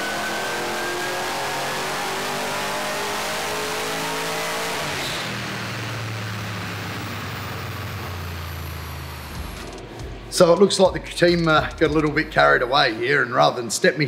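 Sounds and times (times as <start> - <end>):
car engine revving on dyno: 0.0 - 10.4.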